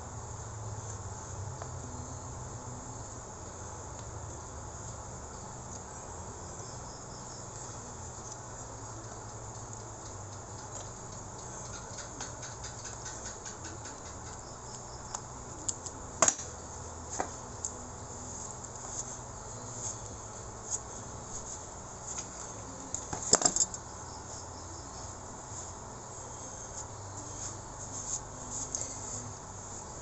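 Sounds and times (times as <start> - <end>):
steady background hiss: 0.0 - 30.0
clicks and knocks of tool parts: 23.0 - 23.8.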